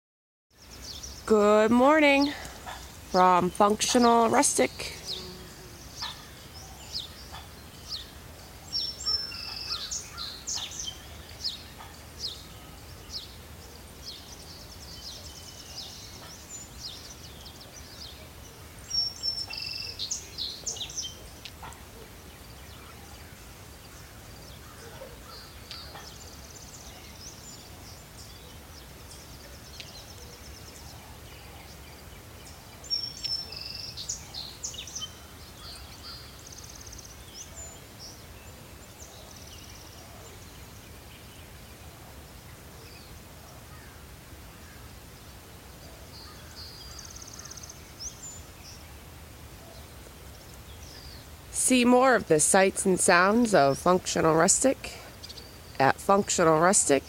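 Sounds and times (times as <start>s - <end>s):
songbirds chirping and trilling: 0.5s - 57.0s.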